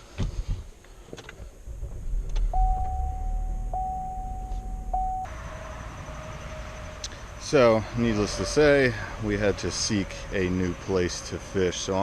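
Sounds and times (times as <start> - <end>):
car engine rumbling: 0.6 - 12.0
electronic warning tone: 2.4 - 5.3.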